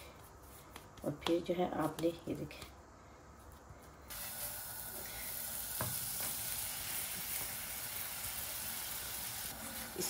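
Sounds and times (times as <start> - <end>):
flatbread sizzling in a pan: 4.1 - 10.0.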